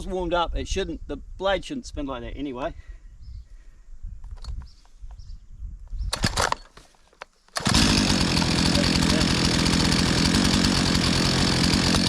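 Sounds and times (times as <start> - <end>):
chainsaw engine running: 7.6 - 12.0.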